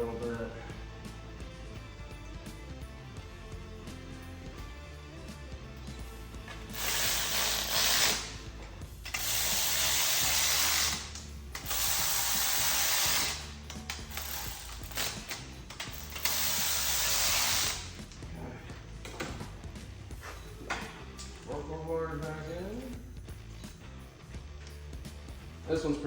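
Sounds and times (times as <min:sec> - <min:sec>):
ratchet wrench clicking: 0:06.5 - 0:18.2.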